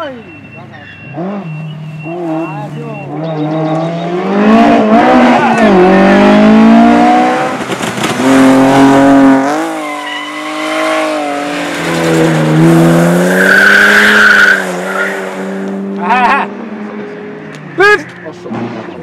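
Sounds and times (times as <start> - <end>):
car engine at high revs: 0.8 - 19.0
tyres squealing: 9.7 - 12.3, 13.2 - 15.3.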